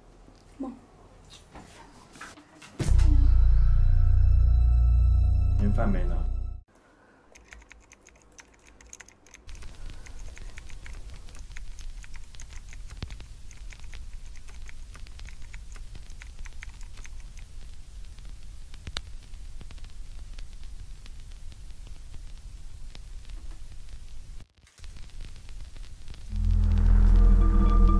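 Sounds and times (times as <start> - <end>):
laptop keyboard typing: 7.3 - 17.7
steady low hum: 26.0 - 27.9.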